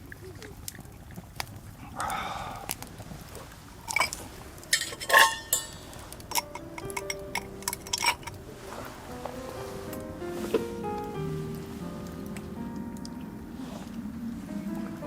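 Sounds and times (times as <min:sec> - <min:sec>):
glass and tableware clinking: 0:03.9 - 0:08.4
background music with held notes: 0:06.1 - 0:15.0.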